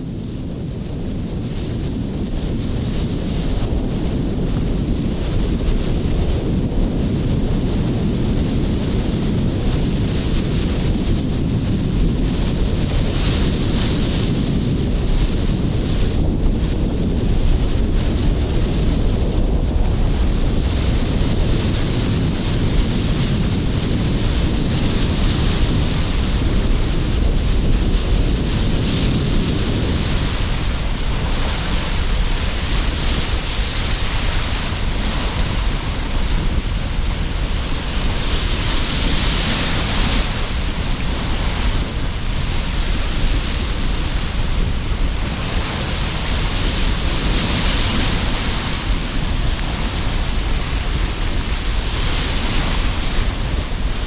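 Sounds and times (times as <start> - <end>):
strong wind rumble: 0.0 - 54.0
surf breaking: 10.0 - 54.0.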